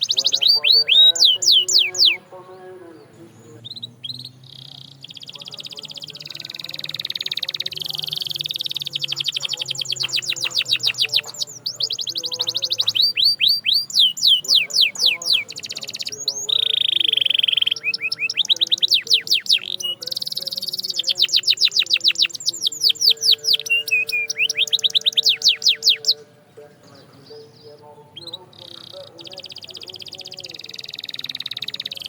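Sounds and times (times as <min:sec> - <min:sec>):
canary singing trills: 0:00.0 - 0:32.0.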